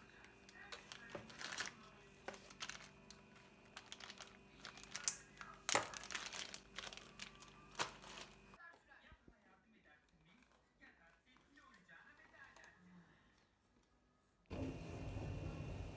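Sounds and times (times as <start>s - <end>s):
plastic packaging crinkling: 0.0s - 8.7s, 9.8s - 12.8s.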